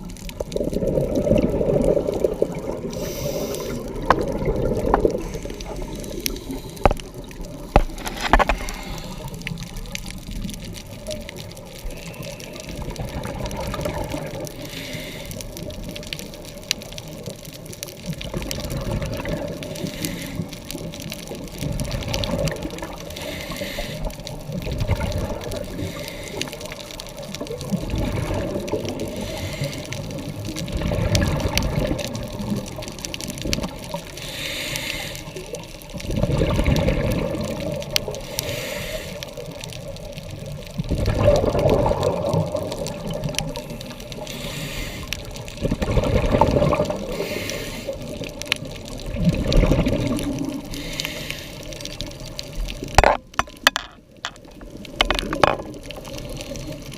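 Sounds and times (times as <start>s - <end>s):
bubbling exhaled air: 0.0s - 16.5s, 18.1s - 39.6s, 40.7s - 56.9s
diver breathing through regulator: 2.9s - 4.0s, 8.0s - 9.5s, 14.6s - 15.6s, 19.7s - 20.7s, 23.1s - 24.2s, 25.7s - 26.8s, 29.1s - 30.2s, 34.2s - 35.5s, 38.2s - 39.4s, 43.6s - 45.4s, 47.0s - 48.2s, 50.6s - 52.0s.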